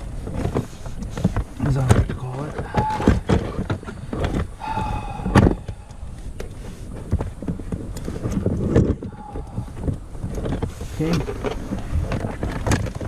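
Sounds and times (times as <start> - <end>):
clicks and rustles of handling: 0.0 - 4.6, 5.3 - 13.0.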